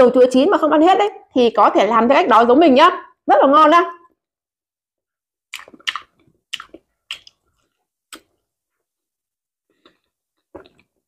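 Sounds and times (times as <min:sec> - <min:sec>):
wet chewing squelches: 0:05.5 - 0:08.3.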